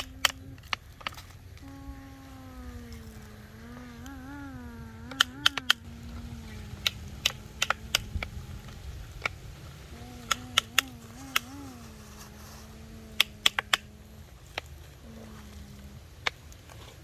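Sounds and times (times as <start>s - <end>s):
sharp metallic clicks: 0.0s - 1.4s, 5.0s - 5.9s, 6.8s - 9.4s, 13.2s - 13.9s
model excavator motor whining: 0.0s - 11.9s.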